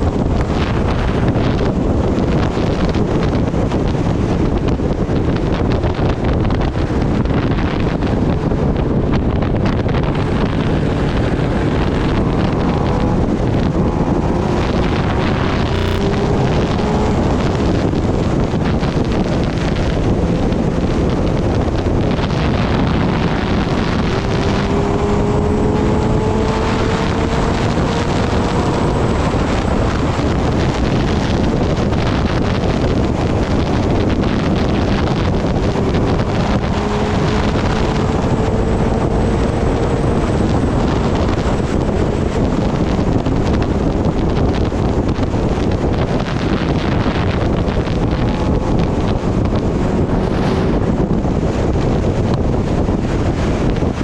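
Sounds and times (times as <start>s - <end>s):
wind buffeting microphone: 0.0s - 54.0s
faint motorcycle engine revving: 9.9s - 31.9s.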